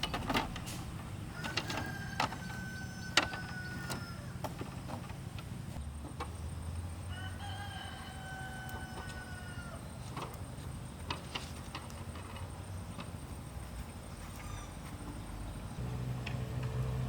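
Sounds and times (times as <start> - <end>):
rooster crowing: 1.3 - 4.6, 7.1 - 10.0, 14.3 - 15.0.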